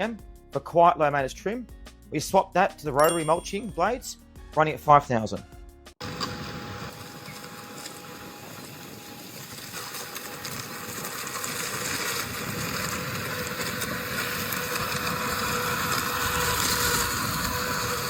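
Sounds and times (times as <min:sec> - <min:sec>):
robot lawn mower humming: 0:06.0 - 0:18.0.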